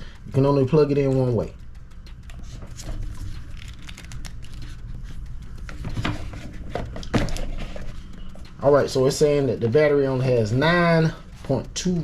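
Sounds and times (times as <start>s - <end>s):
cable rustling: 1.7s - 9.4s.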